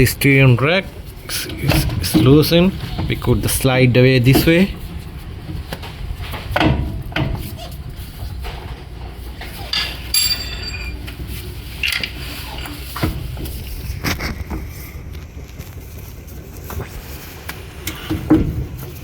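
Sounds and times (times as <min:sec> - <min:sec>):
metal clanks and knocks: 0:01.5 - 0:14.7, 0:17.9 - 0:19.0.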